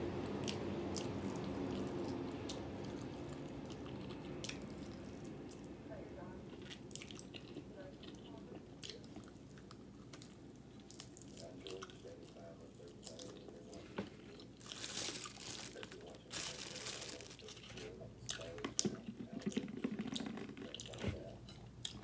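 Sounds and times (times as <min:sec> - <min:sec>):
fried chicken crunching: 0:06.5 - 0:21.1.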